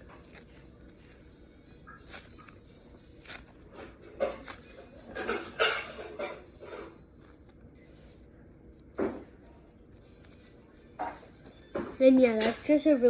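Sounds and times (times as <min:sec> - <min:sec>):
foam putty crackly squishes: 0:00.0 - 0:04.9.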